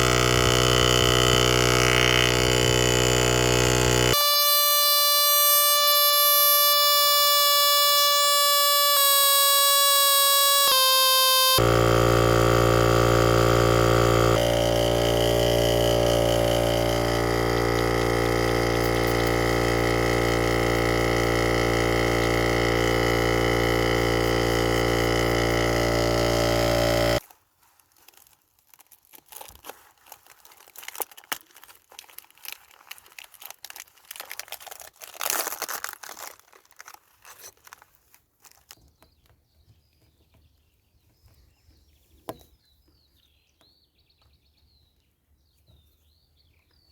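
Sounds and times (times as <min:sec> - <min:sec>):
electric air compressor running: 0:00.0 - 0:27.2.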